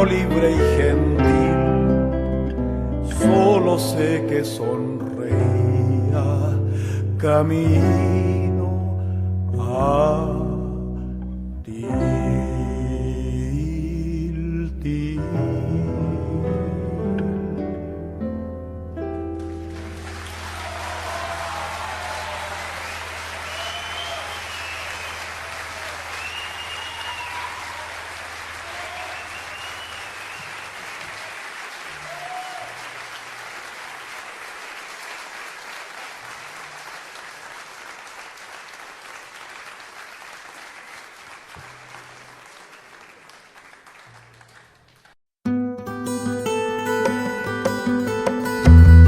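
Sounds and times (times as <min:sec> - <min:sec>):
audience applauding: 0:19.4 - 0:45.2
cheers and whistles: 0:20.2 - 0:33.1.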